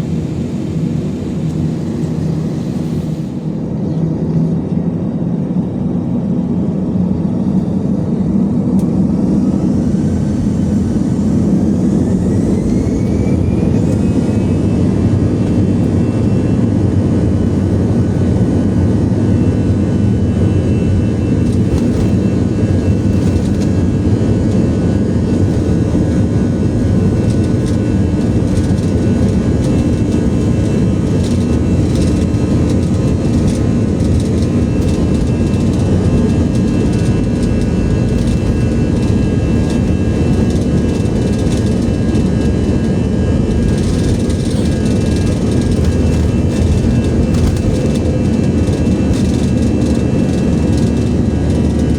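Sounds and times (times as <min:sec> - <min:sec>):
jet engine and airflow noise: 0:00.0 - 0:51.9
rising whine: 0:00.0 - 0:51.9.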